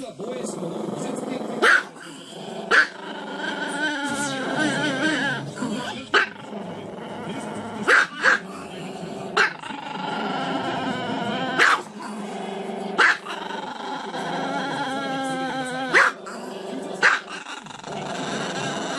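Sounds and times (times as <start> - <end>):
dog barking: 1.6 - 2.0, 2.7 - 3.0, 7.9 - 8.4, 9.4 - 9.6, 11.6 - 11.9, 13.0 - 13.3, 15.9 - 16.2, 17.0 - 17.4.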